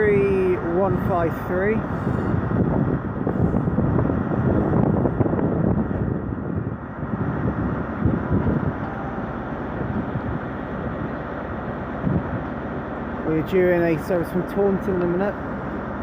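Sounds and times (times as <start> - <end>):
wind on microphone: 0.0 - 11.3, 11.9 - 12.6
diesel train rumbling in: 0.0 - 16.0.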